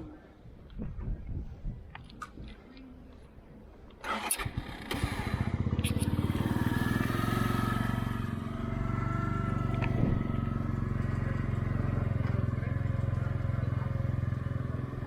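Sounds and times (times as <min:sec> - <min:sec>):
small engine starting and idling: 0:04.0 - 0:15.0
engine knock: 0:04.8 - 0:14.8.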